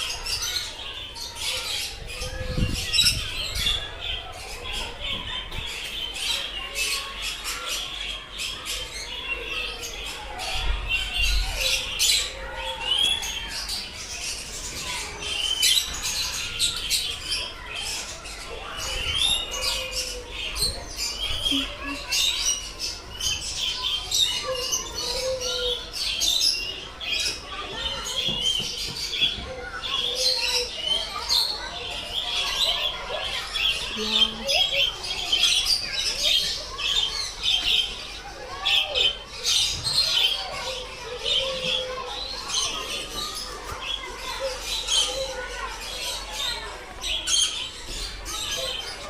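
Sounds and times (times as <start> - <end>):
birds chirping and squawking: 0.0 - 49.0.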